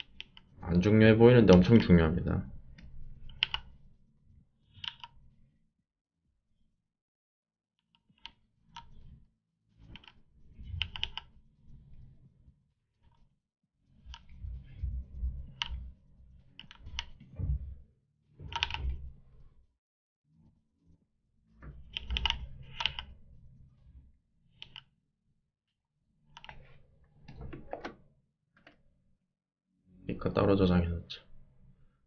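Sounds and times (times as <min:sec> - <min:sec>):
computer keyboard and mouse clicks: 0:00.0 - 0:00.5, 0:03.2 - 0:03.8, 0:04.7 - 0:05.2, 0:09.8 - 0:11.4, 0:14.1 - 0:14.4, 0:15.5 - 0:15.8, 0:16.5 - 0:17.3, 0:18.4 - 0:19.0, 0:21.8 - 0:23.2, 0:24.6 - 0:25.0, 0:26.3 - 0:28.0.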